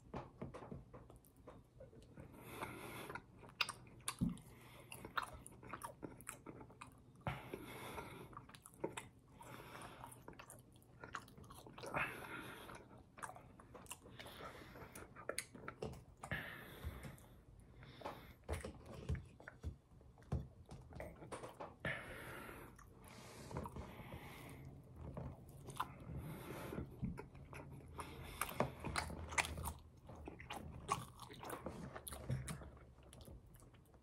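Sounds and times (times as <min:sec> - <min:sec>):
chewing and biting food: 0:01.1 - 0:17.3, 0:22.7 - 0:34.0.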